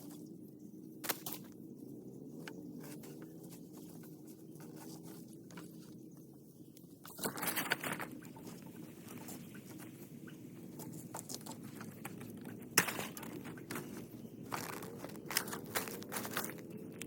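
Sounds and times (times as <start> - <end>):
rustling and crackling handling noise: 1.0 - 17.0.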